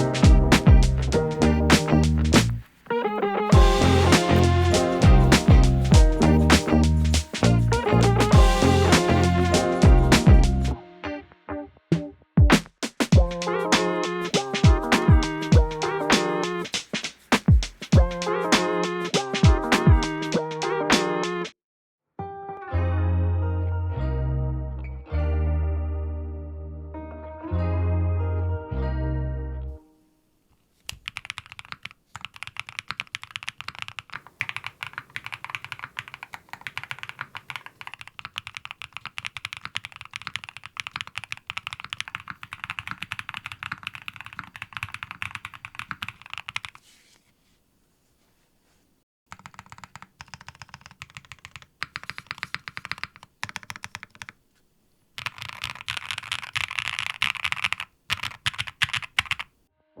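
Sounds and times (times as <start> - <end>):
mechanical keyboard typing: 30.9 - 46.8, 49.3 - 54.4, 55.2 - 59.5.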